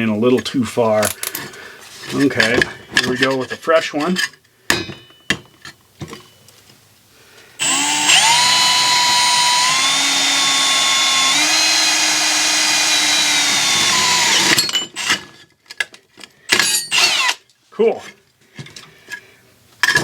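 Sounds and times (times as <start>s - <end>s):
power drill drilling through metal: 7.6s - 15.2s, 16.8s - 17.4s.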